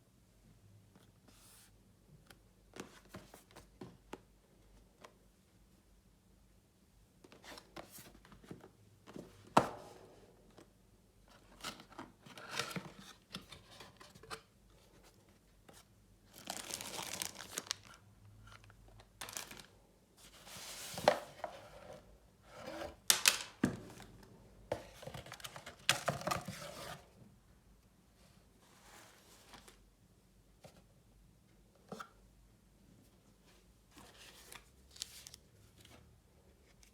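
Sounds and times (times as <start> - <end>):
packaging tearing and crinkling: 16.4 - 17.9.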